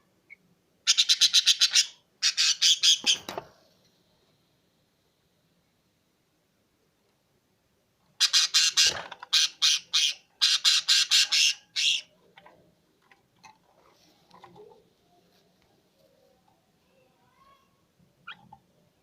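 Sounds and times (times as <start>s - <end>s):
faint small sounds: 3.0s - 9.4s, 11.7s - 19.0s
bird squawking harshly: 8.2s - 12.1s.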